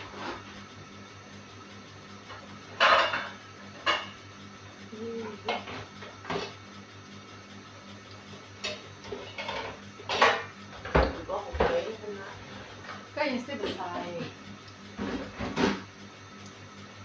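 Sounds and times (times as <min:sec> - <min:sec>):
steady low hum: 0:00.0 - 0:17.0
utensils and dishes clattering: 0:02.8 - 0:04.2, 0:08.6 - 0:11.9.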